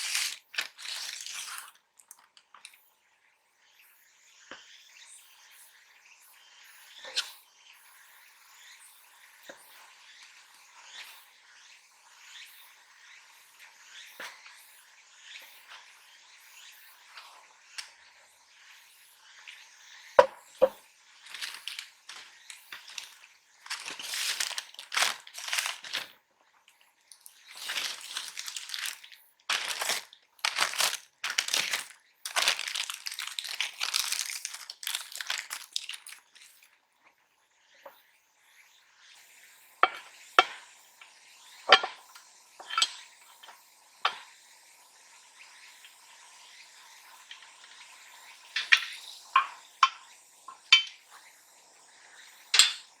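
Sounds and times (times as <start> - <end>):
wrapping material crinkling: 0.0 - 2.3, 21.2 - 26.2, 27.1 - 36.7.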